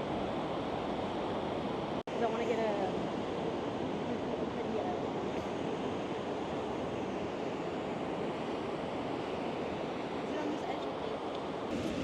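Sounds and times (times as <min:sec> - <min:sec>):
surf breaking on beach: 0:11.6 - 0:12.0.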